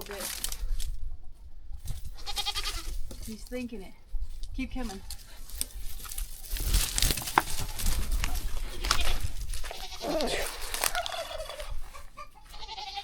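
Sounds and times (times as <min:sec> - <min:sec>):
goat bleating: 0:02.2 - 0:03.0, 0:08.6 - 0:13.0.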